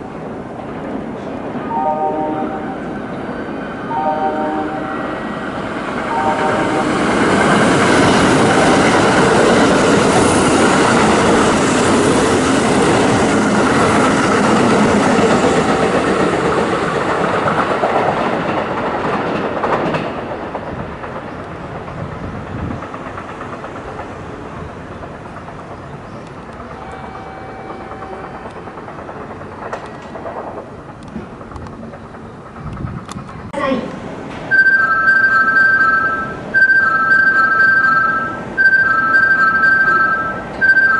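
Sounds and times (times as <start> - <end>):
train rumble: 0.0 - 40.9
train wheels clacking on rails: 5.3 - 33.5.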